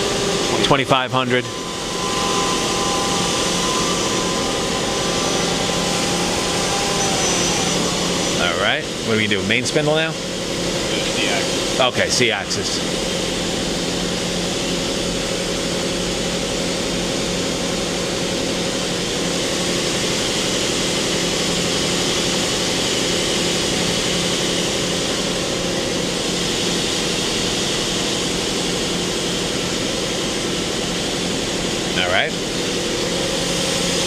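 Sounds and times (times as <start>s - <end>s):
machine spindle humming: 0.0s - 34.0s.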